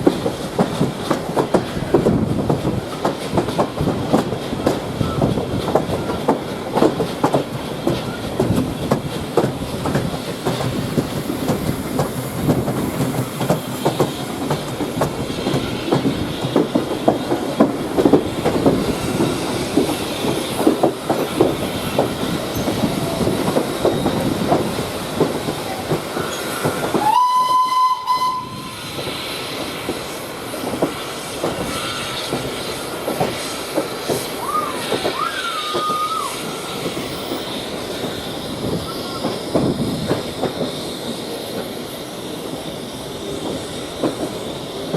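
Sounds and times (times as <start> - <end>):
train wheels clattering: 0.0 - 44.9
train whistle: 26.2 - 28.9, 34.4 - 37.4.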